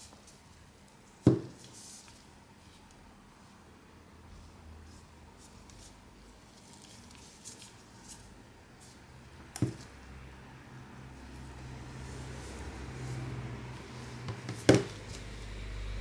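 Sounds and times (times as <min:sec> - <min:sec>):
low hum: 0:15.1 - 0:16.0.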